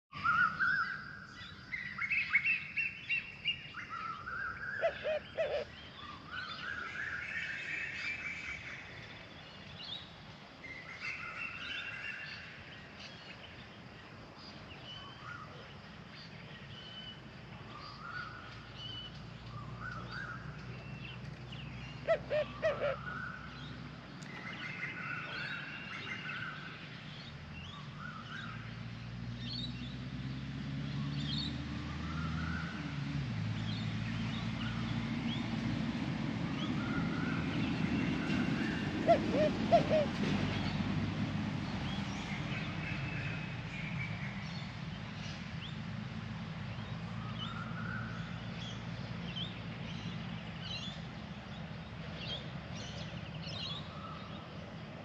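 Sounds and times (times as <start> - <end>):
low bird call: 21.7 - 23.5, 36.7 - 40.8
small birds chirping: 46.6 - 55.0.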